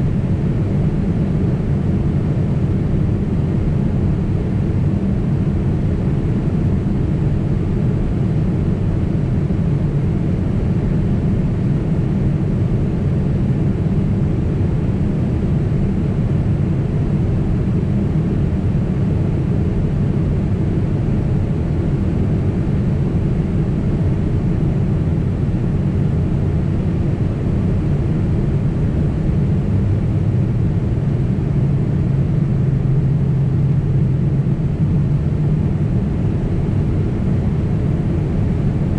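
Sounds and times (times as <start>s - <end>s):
jet engines and airflow rumble: 0.0s - 38.9s.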